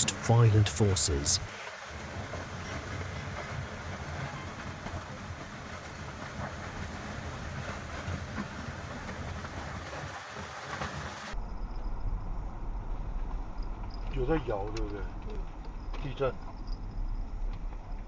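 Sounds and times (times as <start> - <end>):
tornado winds roaring: 0.0 - 13.9.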